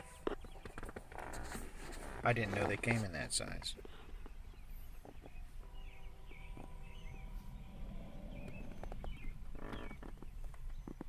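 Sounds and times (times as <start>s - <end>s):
small birds chirping: 0.0s - 11.0s
steady hum: 4.7s - 10.7s.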